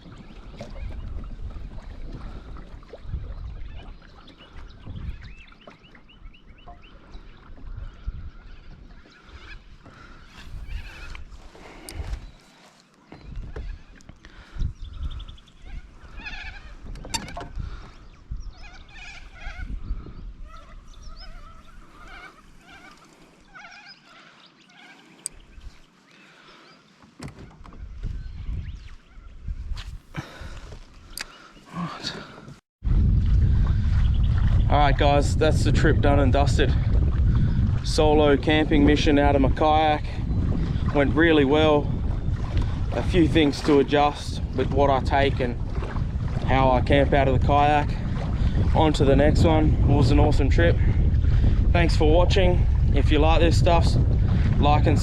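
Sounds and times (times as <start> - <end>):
wind buffeting microphone: 0.0 - 12.4, 13.2 - 22.9, 25.3 - 25.9, 27.5 - 31.4, 32.8 - 55.0
bird calling: 8.3 - 11.2, 11.8 - 27.6.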